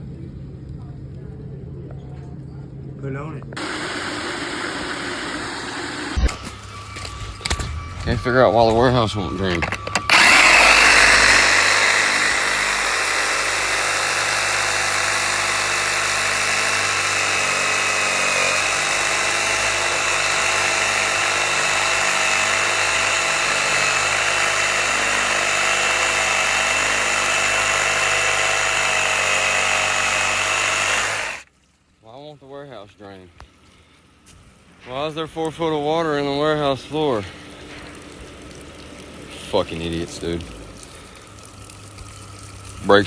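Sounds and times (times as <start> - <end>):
motor running with high whine: 3.5 - 31.4.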